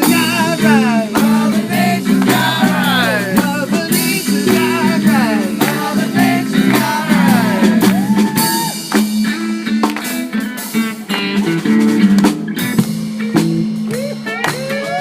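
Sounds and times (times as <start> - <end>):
person singing: 0.0 - 8.8
live band playing upbeat song: 0.0 - 15.0.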